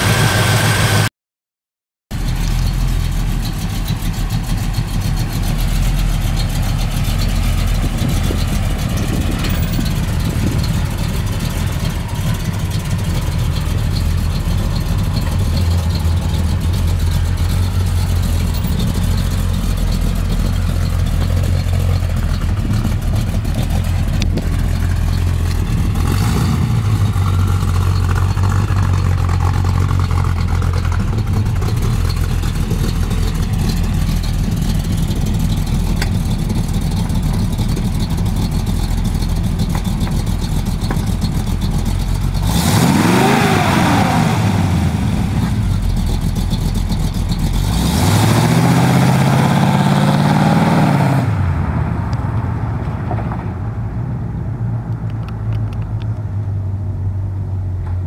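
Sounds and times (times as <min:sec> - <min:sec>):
car engine exhaust rumble: 0:02.1 - 0:58.0.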